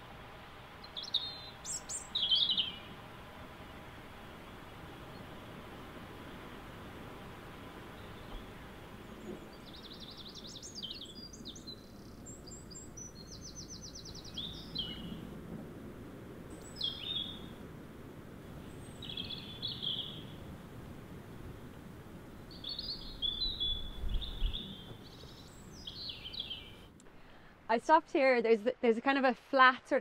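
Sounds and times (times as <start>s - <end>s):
steady low background noise: 0.0s - 30.0s
small birds singing: 0.7s - 6.4s, 7.6s - 15.4s, 16.4s - 17.6s, 18.6s - 20.5s, 22.4s - 27.0s
bird trill: 0.8s - 2.9s, 9.3s - 15.2s, 16.5s - 17.5s, 18.9s - 20.4s, 22.5s - 26.8s.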